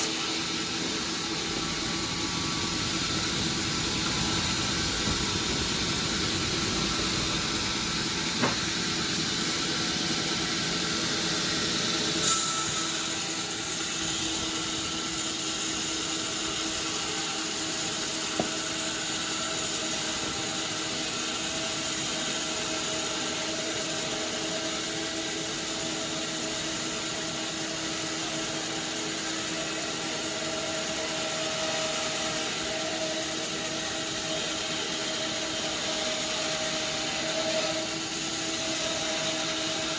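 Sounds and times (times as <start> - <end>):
high whine: 0.0 - 9.5
sawmill machinery running: 0.0 - 39.9.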